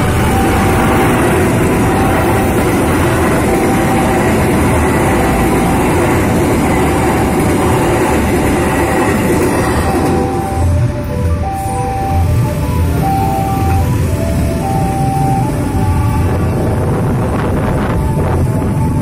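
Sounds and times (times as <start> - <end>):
steady tone: 0.0 - 19.0
train rushing past on rails: 0.0 - 19.0.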